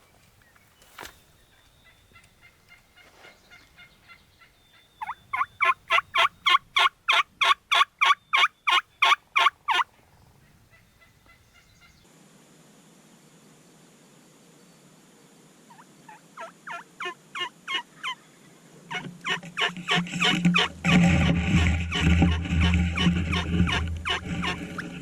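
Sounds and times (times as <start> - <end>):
turkey yelping: 3.8 - 9.9, 15.7 - 18.2, 21.9 - 24.8.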